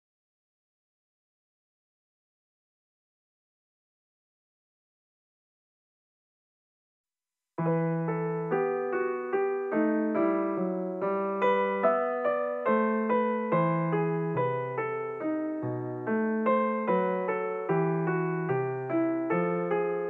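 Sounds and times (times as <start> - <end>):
slow solo piano: 7.6 - 20.0.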